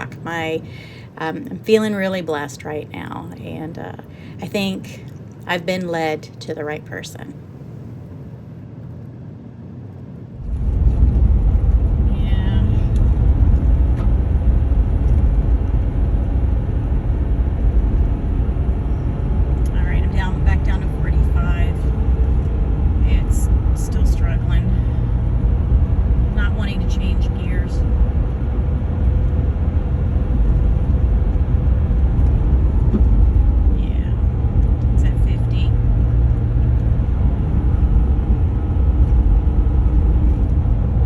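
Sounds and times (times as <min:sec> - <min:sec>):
truck cabin rumble at speed: 0:10.4 - 0:41.0.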